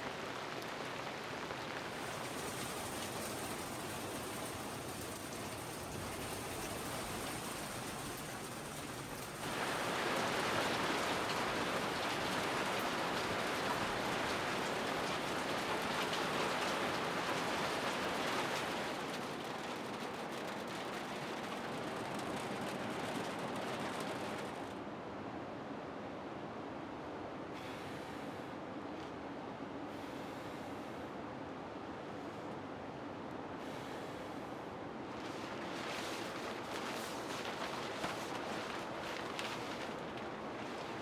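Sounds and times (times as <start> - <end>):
heavy rain hissing: 0.0 - 19.5.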